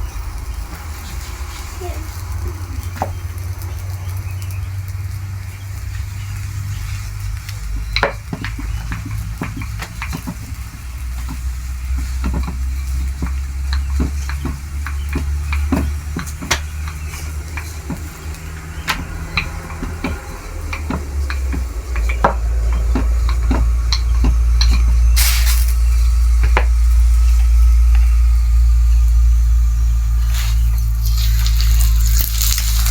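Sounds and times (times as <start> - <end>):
bread sizzling on a pan: 0.0 - 32.9
steady low rumble: 0.0 - 32.9
utensils clicking and scraping: 5.8 - 28.2.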